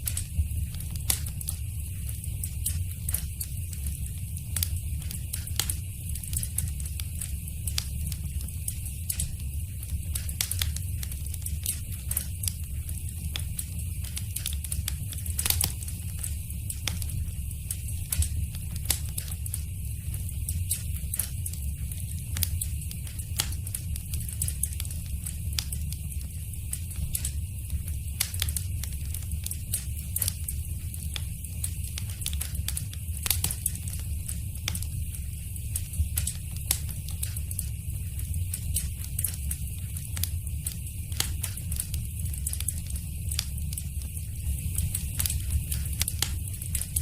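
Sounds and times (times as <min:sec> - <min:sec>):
low rumble of flames: 0:00.0 - 0:47.0
wood fire crackling: 0:00.0 - 0:47.0.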